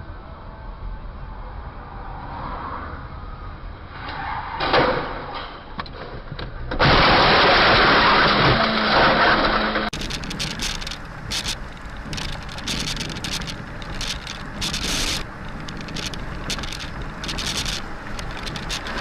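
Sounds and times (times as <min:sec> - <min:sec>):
car driving: 0:06.8 - 0:19.0.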